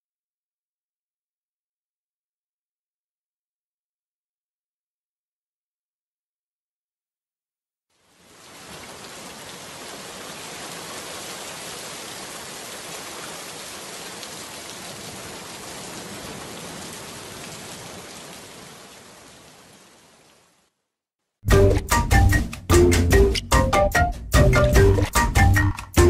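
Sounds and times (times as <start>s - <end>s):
rain splashing on wet surface: 8.0s - 20.7s.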